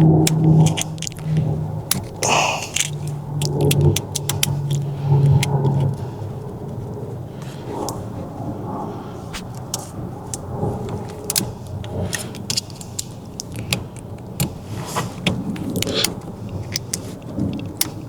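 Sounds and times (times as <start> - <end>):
metallic clicks of hand tools: 0.0 - 5.6, 9.8 - 18.0
low hum: 0.0 - 12.6.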